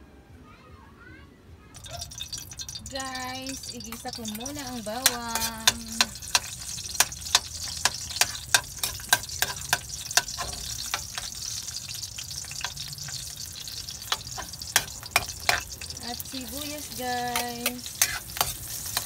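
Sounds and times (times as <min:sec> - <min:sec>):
metal ladle clinking on wok: 0:01.8 - 0:11.6
garlic sizzling in hot oil: 0:01.8 - 0:19.0.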